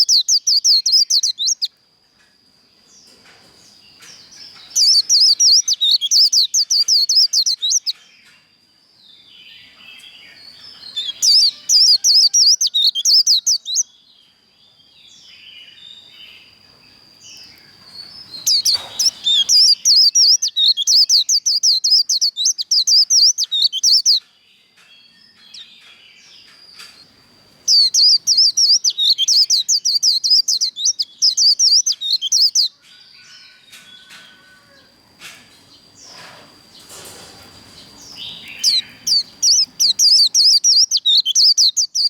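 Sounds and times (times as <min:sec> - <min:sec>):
bird singing rapid high notes: 0:18.3 - 0:24.2, 0:27.7 - 0:32.7, 0:38.0 - 0:42.0.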